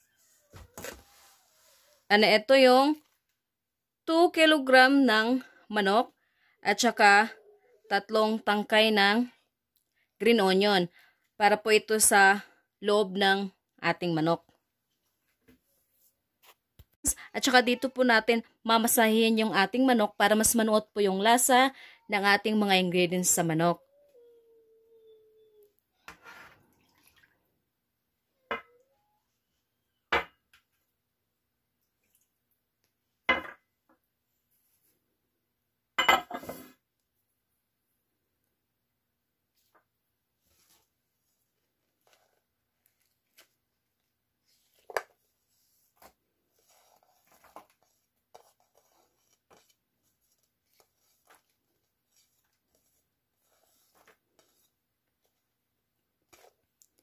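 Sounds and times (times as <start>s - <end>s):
dishes clinking: 36.0s - 36.5s.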